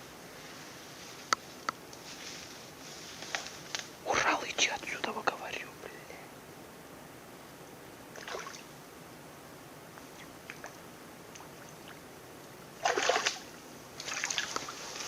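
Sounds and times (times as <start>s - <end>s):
stream flowing: 8.1s - 8.8s, 10.3s - 15.0s
splashing: 8.2s - 8.7s, 12.8s - 15.0s.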